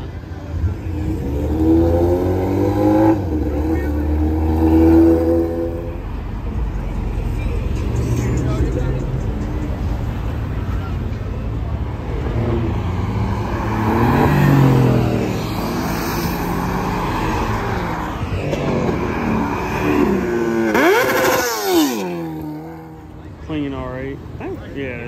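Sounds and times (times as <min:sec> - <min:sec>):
sports cars driving past: 0:00.0 - 0:25.0
car engine revving hard: 0:00.9 - 0:05.9, 0:12.4 - 0:23.0.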